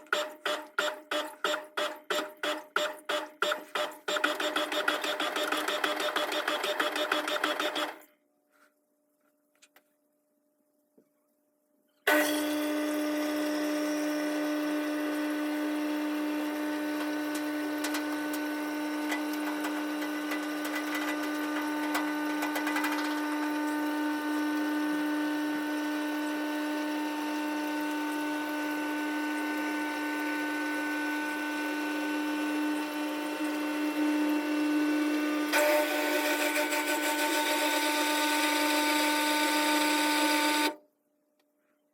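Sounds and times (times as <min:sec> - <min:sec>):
washing machine motor whine: 0:12.1 - 0:40.8.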